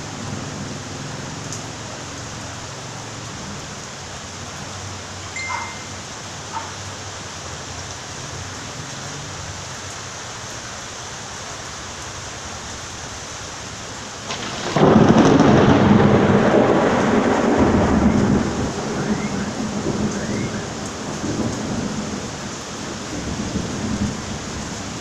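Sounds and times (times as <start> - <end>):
rain falling: 0.0 - 25.0
thunder crack and rumble: 14.2 - 22.4, 23.0 - 25.0.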